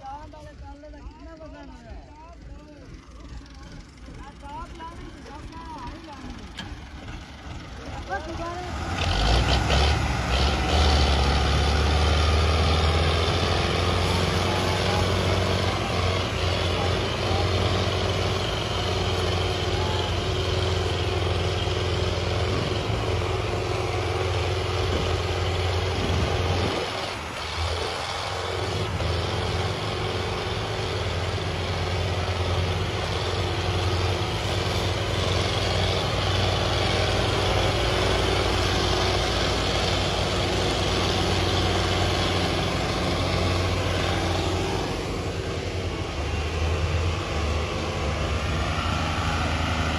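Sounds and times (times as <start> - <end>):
tractor diesel engine humming: 0.0 - 49.9.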